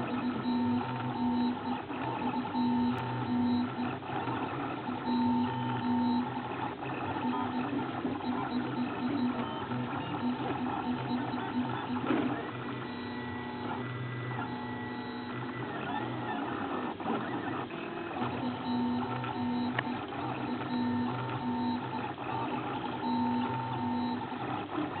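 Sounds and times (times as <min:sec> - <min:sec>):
mechanical hum: 0:00.0 - 0:25.0.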